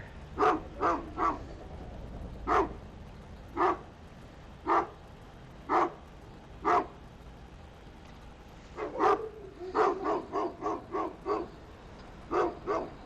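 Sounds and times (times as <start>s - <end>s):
large dog barking: 0.3s - 1.6s, 2.4s - 2.8s, 3.5s - 3.9s, 4.6s - 5.0s, 5.7s - 6.0s, 6.6s - 7.0s, 8.8s - 11.6s, 12.2s - 13.0s.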